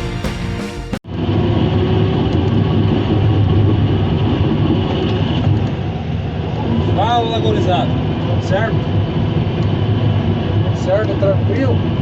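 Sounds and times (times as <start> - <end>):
music: 0.0 - 1.0.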